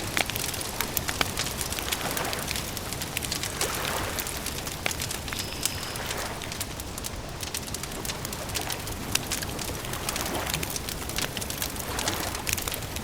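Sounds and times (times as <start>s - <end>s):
campfire crackling and popping: 0.0s - 13.0s
bird calling: 5.2s - 6.4s.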